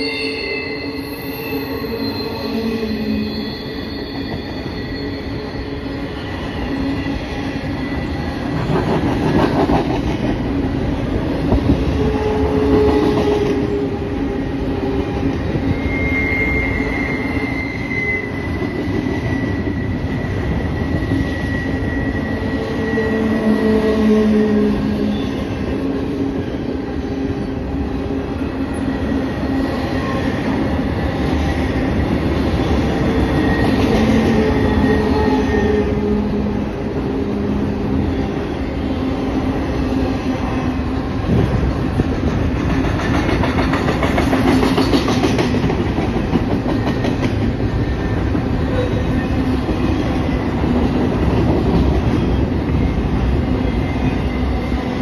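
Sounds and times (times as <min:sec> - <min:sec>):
train wheels rumbling on track: 0:00.0 - 0:55.0
wheels squealing: 0:15.6 - 0:23.6.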